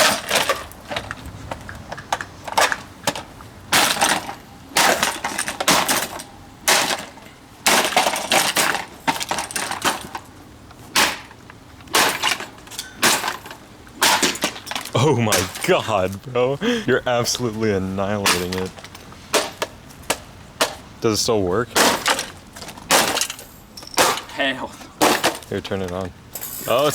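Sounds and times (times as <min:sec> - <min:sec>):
hard blows smashing a plastic fan: 0:00.0 - 0:01.1, 0:02.5 - 0:16.0, 0:18.2 - 0:20.9, 0:21.7 - 0:24.4, 0:25.0 - 0:25.5.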